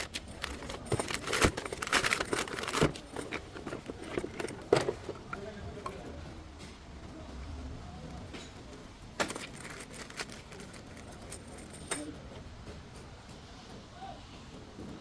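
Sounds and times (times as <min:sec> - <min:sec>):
crinkling: 0:00.0 - 0:06.1, 0:09.2 - 0:12.1
metal tools clinking and rattling: 0:00.0 - 0:06.1, 0:09.2 - 0:12.1.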